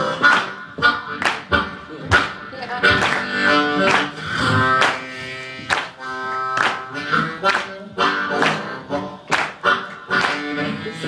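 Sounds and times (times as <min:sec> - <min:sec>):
band playing: 0:00.0 - 0:11.0
blues harmonica: 0:00.0 - 0:11.0.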